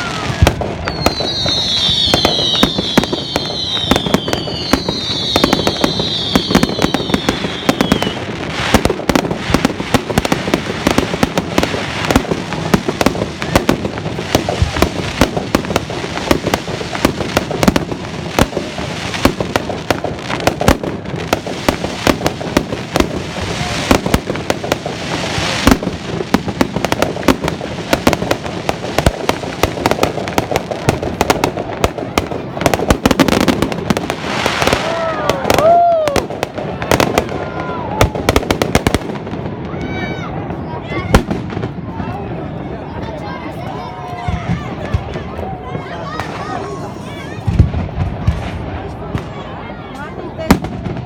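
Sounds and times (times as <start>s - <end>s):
falling firework whistles: 0.0s - 8.8s
fireworks bangs and crackling pops: 0.0s - 51.0s.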